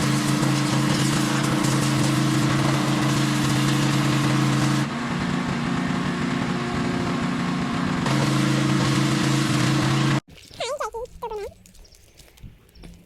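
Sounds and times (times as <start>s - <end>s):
engine running: 0.0s - 10.3s.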